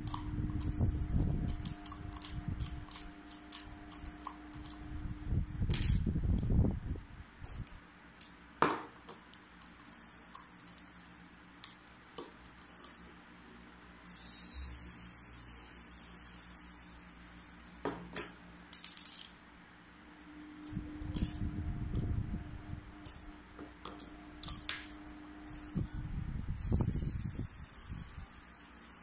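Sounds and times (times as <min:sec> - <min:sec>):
small parts clicking and tapping: 0:00.0 - 0:06.5, 0:07.4 - 0:11.0, 0:11.6 - 0:13.0, 0:17.9 - 0:19.4
low rumbling: 0:20.4 - 0:23.5.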